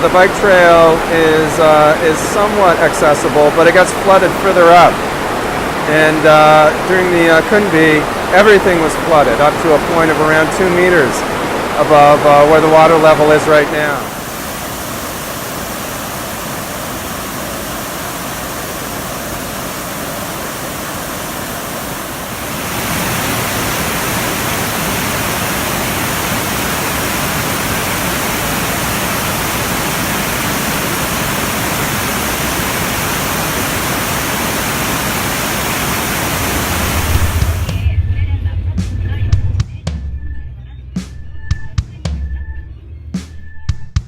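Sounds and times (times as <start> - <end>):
stream rushing: 0.0 - 37.8
low hum: 36.4 - 44.0.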